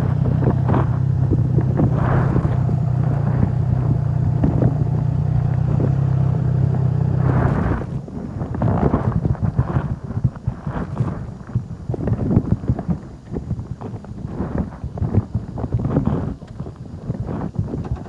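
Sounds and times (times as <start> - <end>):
motorcycle engine running: 0.0 - 11.6, 16.5 - 18.0
wind noise: 0.0 - 18.0.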